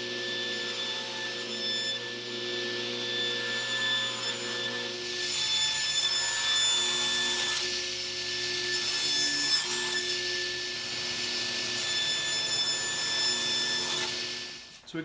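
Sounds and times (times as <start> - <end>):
electric saw motor whine: 0.0 - 14.7.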